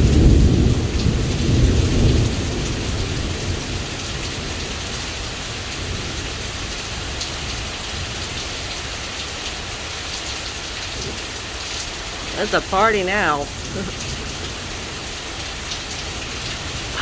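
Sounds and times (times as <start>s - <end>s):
low rumble of thunder: 0.0s - 8.8s
heavy rain pouring: 0.0s - 17.0s.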